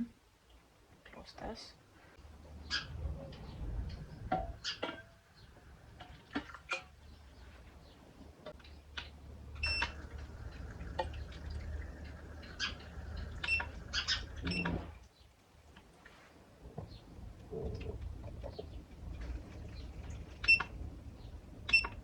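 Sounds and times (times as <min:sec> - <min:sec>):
water dripping: 0:02.9 - 0:16.1, 0:17.1 - 0:22.0
humidifier humming: 0:08.9 - 0:15.0.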